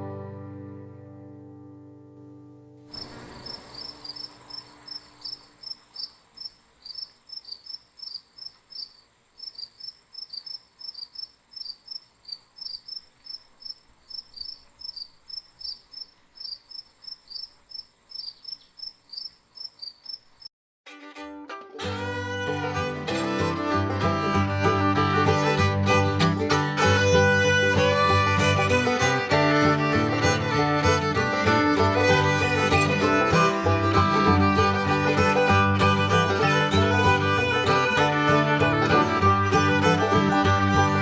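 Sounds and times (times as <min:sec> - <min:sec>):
banjo chord: 0:00.0 - 0:02.4, 0:20.9 - 0:41.0
crickets trilling and chirping: 0:02.9 - 0:20.5.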